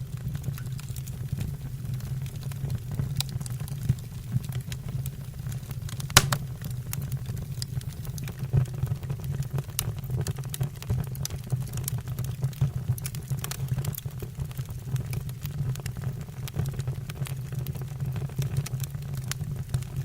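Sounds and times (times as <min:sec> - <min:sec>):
loud pop: 0:06.2 - 0:06.7
wood fire crackling: 0:06.2 - 0:06.9.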